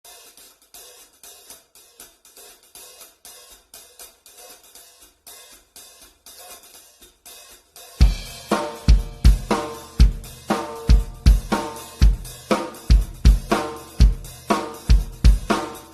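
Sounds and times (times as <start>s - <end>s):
hi-hat cymbals: 0.0s - 15.9s
bass drum and snare hits: 8.0s - 15.9s.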